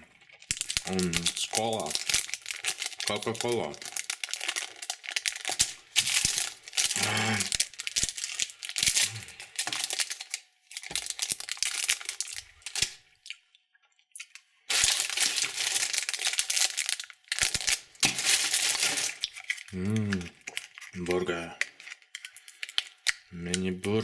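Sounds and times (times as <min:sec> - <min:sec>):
plastic wrappers crinkling: 0:00.2 - 0:13.0, 0:14.2 - 0:24.0.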